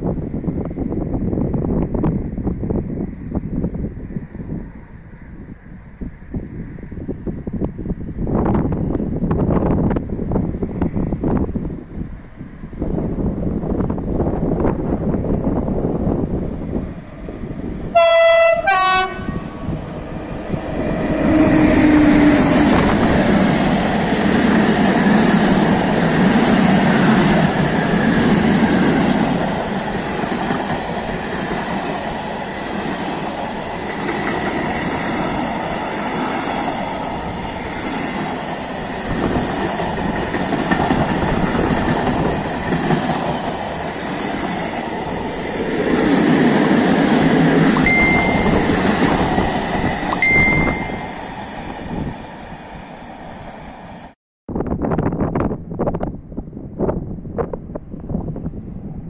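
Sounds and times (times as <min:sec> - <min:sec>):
freight train rumbling past: 0:00.0 - 0:59.0
train horn blasts: 0:17.9 - 0:19.8.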